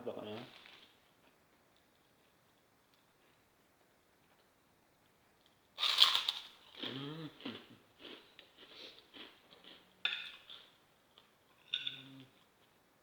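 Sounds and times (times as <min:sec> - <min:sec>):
crunchy chewing: 0:05.8 - 0:09.9
person humming with enjoyment: 0:06.9 - 0:07.5.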